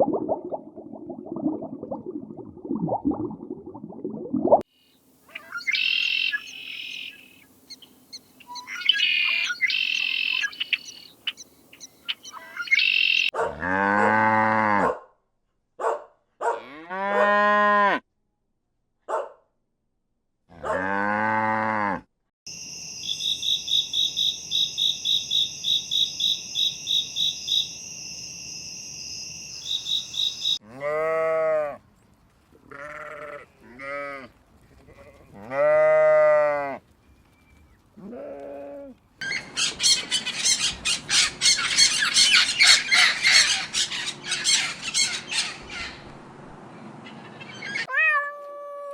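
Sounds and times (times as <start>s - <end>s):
small birds chirping: 4.8s - 13.3s, 22.5s - 30.6s
fast high chirping: 5.3s - 13.3s, 22.5s - 30.6s
cattle mooing: 13.5s - 14.9s, 16.6s - 18.0s, 20.5s - 22.0s.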